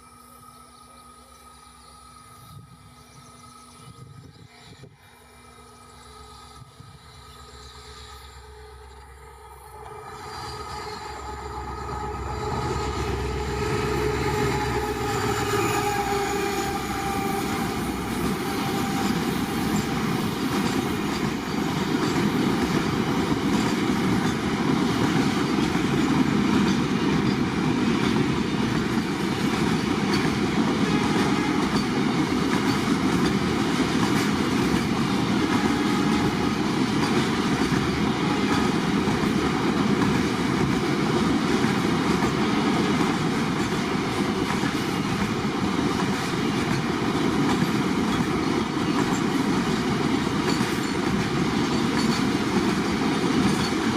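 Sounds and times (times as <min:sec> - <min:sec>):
locomotive engine hum: 0:00.0 - 0:53.9
wheels clattering over rail joints: 0:43.0 - 0:53.9.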